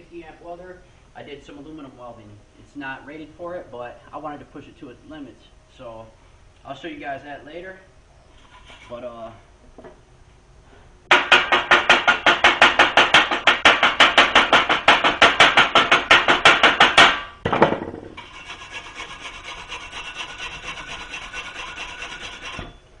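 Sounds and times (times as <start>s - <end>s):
wire brush scrubbing metal: 18.2s - 22.8s.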